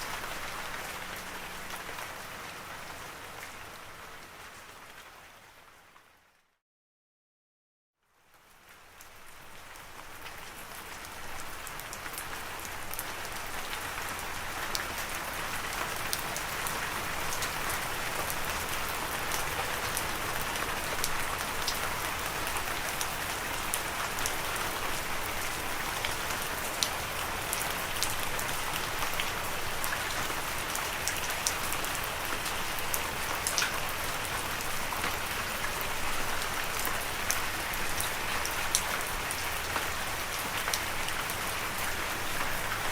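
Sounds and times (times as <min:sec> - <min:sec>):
steady rain hiss: 0:08.7 - 0:42.9.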